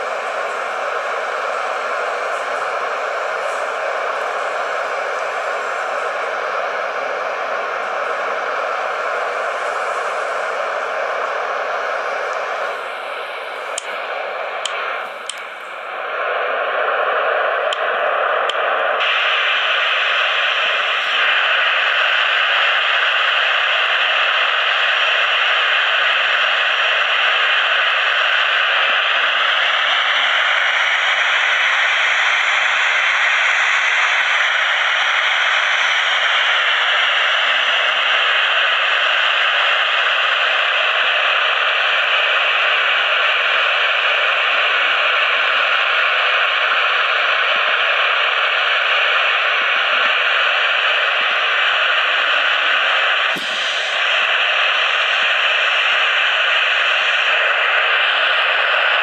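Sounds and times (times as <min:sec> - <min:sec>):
high engine whine: 0:00.0 - 0:59.0
airliner jet engine rushing: 0:52.1 - 0:59.0.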